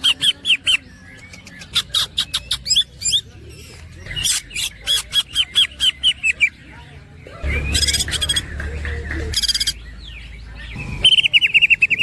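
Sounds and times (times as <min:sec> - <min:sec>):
bird whistling sharp notes: 0:10.7 - 0:12.0.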